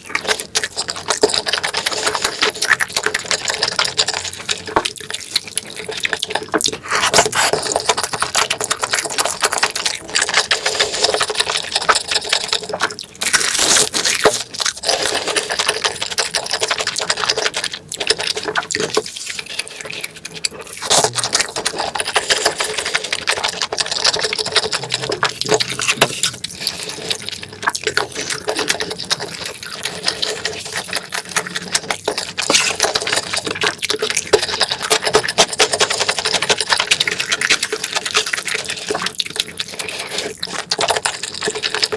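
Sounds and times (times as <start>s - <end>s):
wet chewing and mouth smacking: 0.0s - 41.9s
moist mouth clicks: 14.8s - 38.7s.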